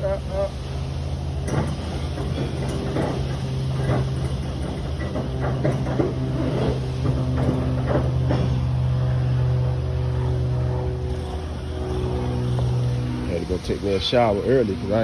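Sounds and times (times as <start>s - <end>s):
truck engine idling: 0.0s - 15.0s
short knocks and rattles: 1.4s - 8.8s.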